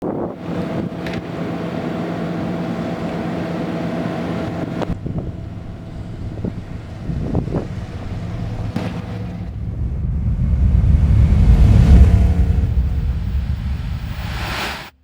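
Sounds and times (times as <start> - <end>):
wind noise on microphone: 0.0 - 1.3, 4.6 - 14.7
car engine idling: 0.8 - 14.6.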